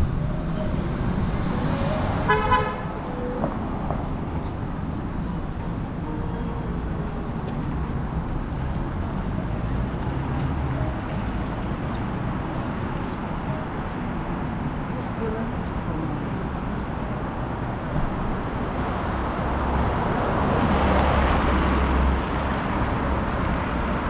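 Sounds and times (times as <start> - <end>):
city street traffic: 0.0 - 24.0
short car horn honk: 2.3 - 2.8.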